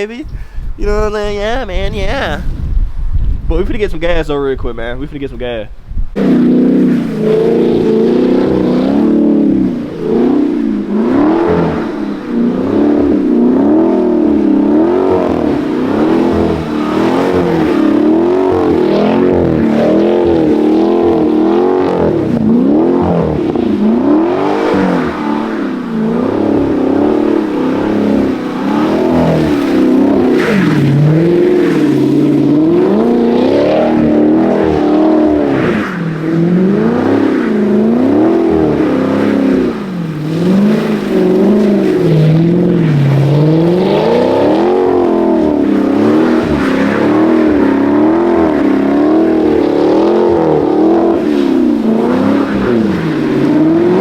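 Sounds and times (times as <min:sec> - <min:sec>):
car engine revving: 0:06.1 - 0:54.0.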